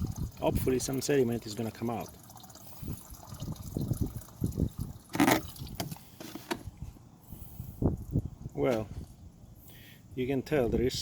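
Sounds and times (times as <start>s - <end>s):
water splashing into a container: 0.0s - 6.2s.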